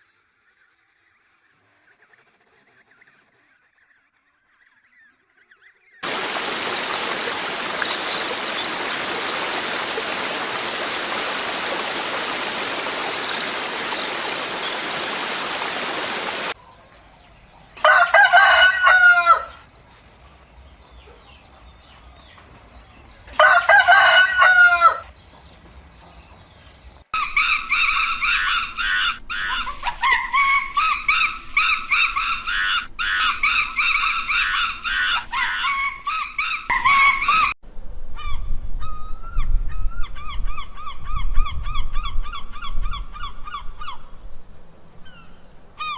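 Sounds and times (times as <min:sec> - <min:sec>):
rapid high chattering calls: 0:06.0 - 0:16.6
steady hiss: 0:06.0 - 0:16.6
rooster crowing: 0:17.8 - 0:19.7, 0:23.3 - 0:25.1, 0:35.4 - 0:37.6.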